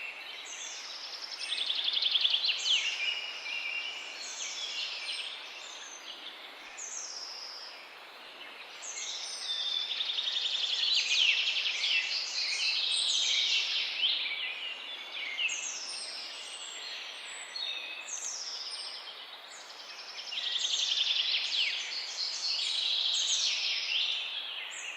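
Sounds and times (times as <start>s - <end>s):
songbirds chorus: 0.0s - 24.9s.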